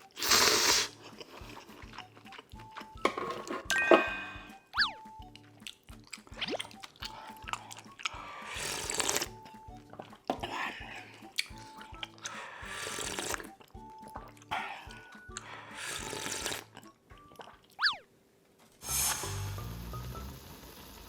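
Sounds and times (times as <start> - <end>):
person eating noodles: 0.0 - 3.5, 5.3 - 17.9
background music: 0.0 - 18.0, 18.8 - 21.0.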